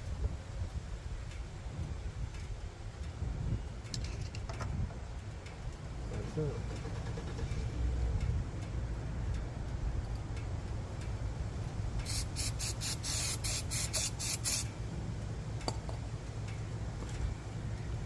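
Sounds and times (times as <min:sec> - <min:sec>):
low steady rumble: 0:00.0 - 0:12.8, 0:14.6 - 0:18.0
pulsing spraying hiss: 0:12.0 - 0:14.7.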